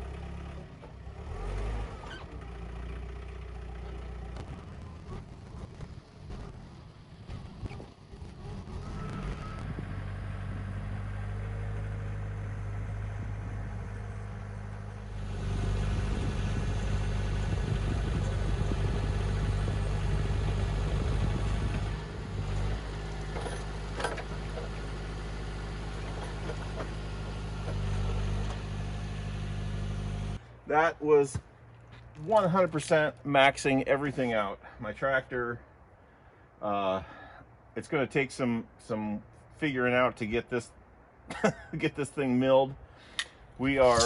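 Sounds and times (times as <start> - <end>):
tractor engine running: 0.0 - 30.8.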